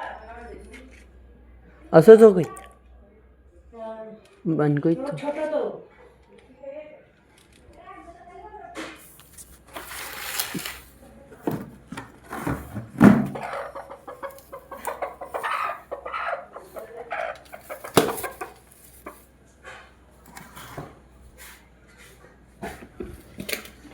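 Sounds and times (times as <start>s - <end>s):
hen clucking: 13.2s - 19.9s.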